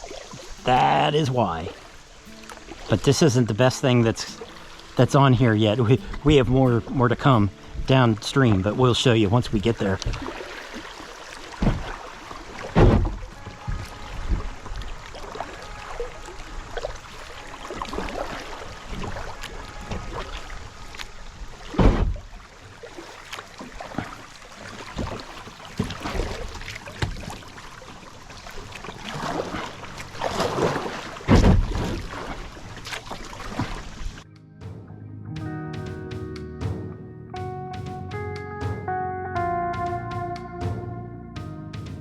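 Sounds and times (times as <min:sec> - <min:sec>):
paddle strokes splashing: 0:00.0 - 0:34.2
water rushing around hull: 0:00.0 - 0:34.3
heavy thumps: 0:12.7 - 0:14.6.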